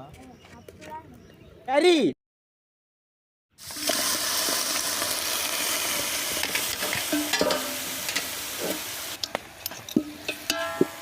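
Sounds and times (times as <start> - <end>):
food sizzling in hot oil: 3.6 - 11.0
ladle scraping metal pan: 6.4 - 8.9, 9.7 - 11.0.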